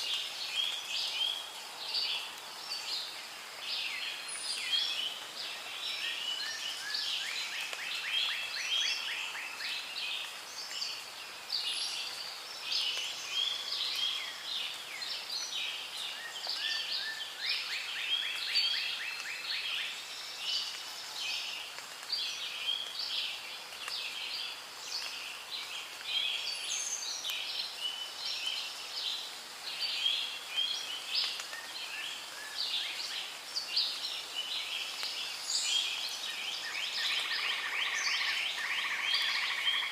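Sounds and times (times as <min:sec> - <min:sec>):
steady hiss: 0:00.0 - 0:39.9
many birds calling and chirping: 0:29.8 - 0:39.9.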